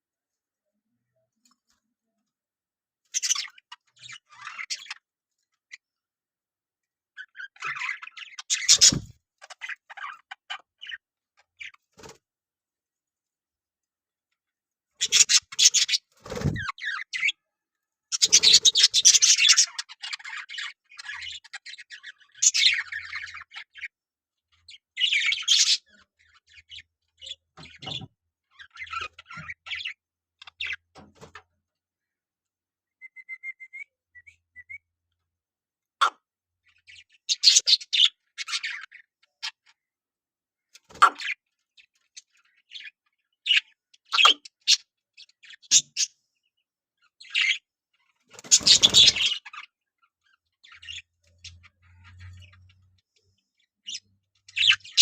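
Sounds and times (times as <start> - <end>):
budgerigars chirping: 3.1 - 5.0, 7.4 - 11.0, 15.0 - 17.4, 18.1 - 23.9, 25.0 - 28.0, 36.8 - 38.9, 47.2 - 47.6, 48.4 - 49.7, 50.6 - 52.8, 53.8 - 55.0.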